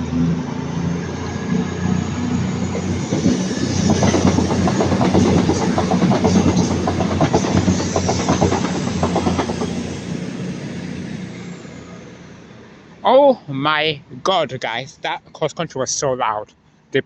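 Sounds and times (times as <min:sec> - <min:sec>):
train diesel engines under power: 0:00.0 - 0:16.1
wheels clacking over rail joints: 0:02.6 - 0:10.2.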